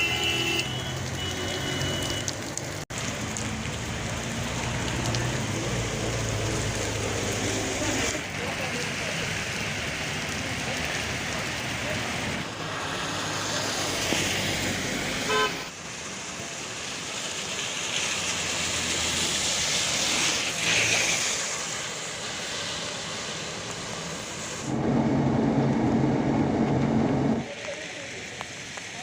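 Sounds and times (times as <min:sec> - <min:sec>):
car horn toot: 0:00.0 - 0:02.3, 0:15.3 - 0:15.6
rain and wet tyres hissing: 0:00.0 - 0:29.0.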